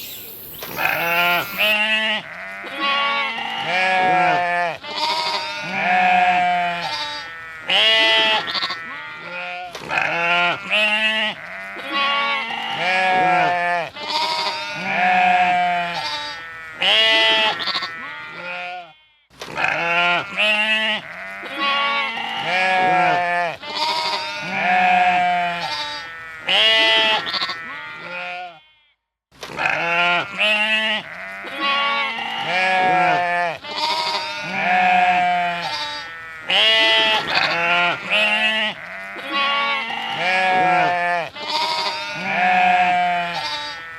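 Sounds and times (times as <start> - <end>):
sheep bleating: 0.6 - 43.9.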